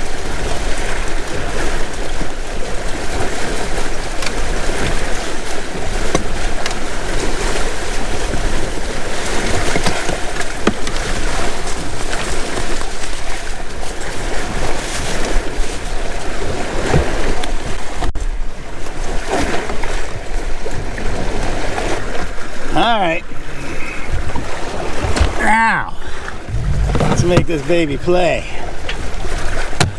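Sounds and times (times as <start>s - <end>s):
water rushing past hulls: 0.0s - 29.9s
wind buffeting microphone: 26.2s - 29.7s.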